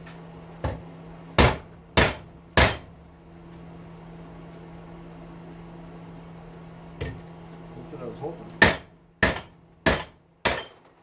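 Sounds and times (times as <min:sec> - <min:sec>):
hammer striking metal tool: 0:01.4 - 0:02.9, 0:08.6 - 0:10.8.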